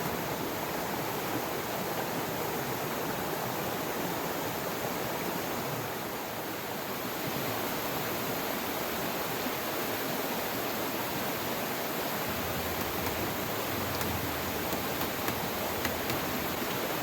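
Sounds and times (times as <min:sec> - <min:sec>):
water rushing: 0:07.1 - 0:17.0.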